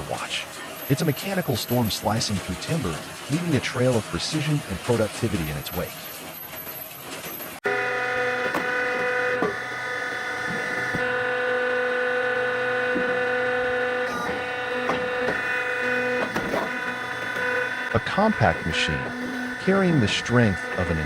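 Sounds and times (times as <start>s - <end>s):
wood splitter engine humming: 7.3s - 21.0s.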